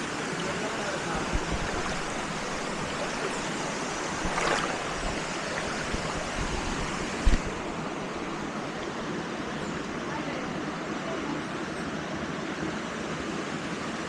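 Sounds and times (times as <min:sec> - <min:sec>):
waterfall rushing into a pool: 0:00.0 - 0:07.6.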